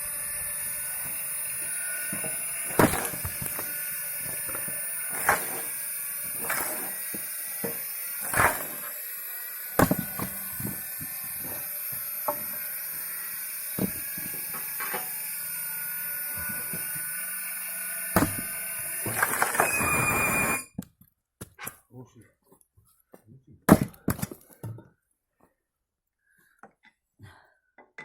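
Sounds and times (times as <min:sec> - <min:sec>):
log splitter motor whine: 0:00.0 - 0:20.7
firewood knocking and cracking: 0:02.2 - 0:08.9, 0:09.8 - 0:12.5, 0:18.2 - 0:18.5.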